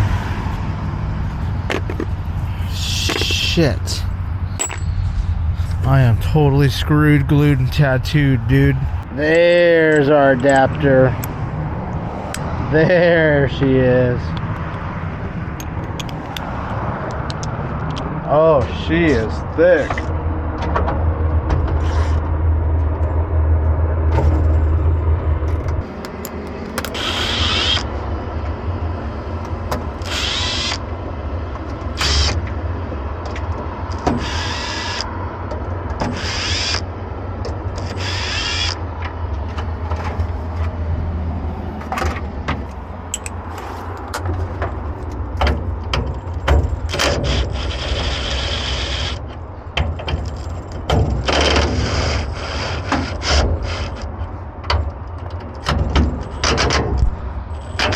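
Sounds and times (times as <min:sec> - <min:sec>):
low engine-like rumble: 0:00.0 - 0:27.0
metal clicks: 0:25.6 - 0:27.0.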